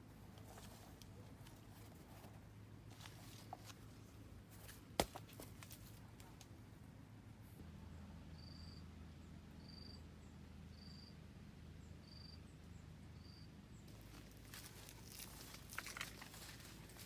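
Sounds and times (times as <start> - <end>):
rustling and crackling: 0.0 - 6.5, 13.9 - 17.0.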